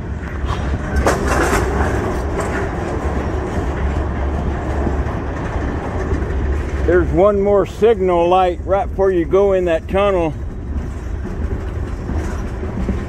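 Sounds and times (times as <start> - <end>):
train wheels rumbling on rails: 0.0 - 13.0
sharp clanks: 0.4 - 3.9.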